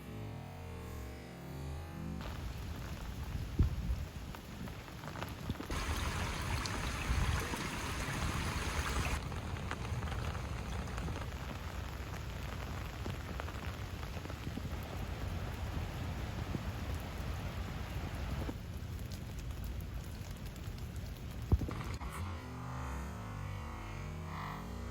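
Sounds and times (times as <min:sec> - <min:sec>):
steady rain falling: 0:02.2 - 0:22.0.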